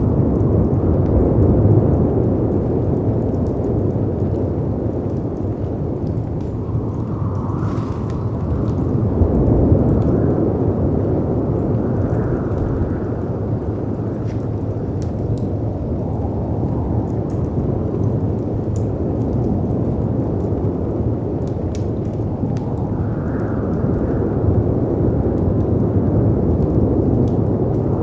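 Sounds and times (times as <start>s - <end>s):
wind: 0.0s - 28.0s
wood fire crackling: 0.0s - 28.0s.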